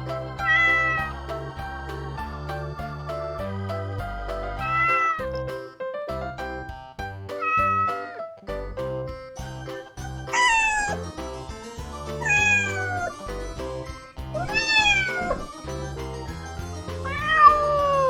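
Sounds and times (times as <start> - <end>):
background music with steady beat: 0.0 - 18.0
cat meowing: 4.6 - 5.2, 7.4 - 8.2, 12.2 - 13.1, 14.4 - 15.4, 17.1 - 18.0.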